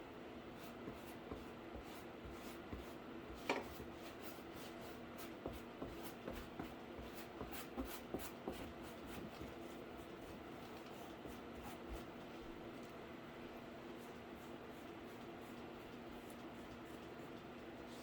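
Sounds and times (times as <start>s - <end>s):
steady low hum: 0.0s - 18.0s
taps and rubbing on cardboard: 5.2s - 9.6s.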